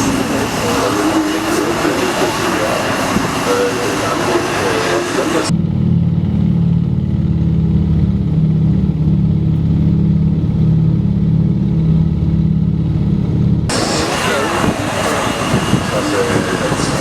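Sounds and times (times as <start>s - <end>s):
rushing noise: 0.0s - 5.5s, 12.8s - 17.0s
aircraft engines droning: 0.0s - 17.0s.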